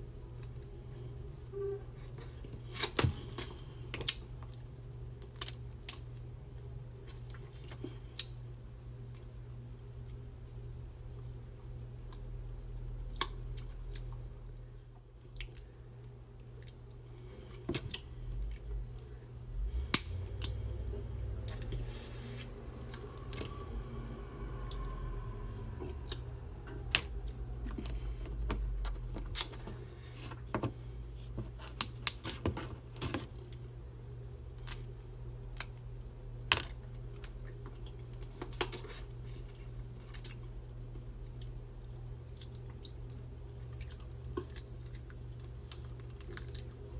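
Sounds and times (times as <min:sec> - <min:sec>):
low steady hum: 0:00.0 - 0:46.9
seafood shells clicking and cracking: 0:05.2 - 0:06.1, 0:43.8 - 0:46.8.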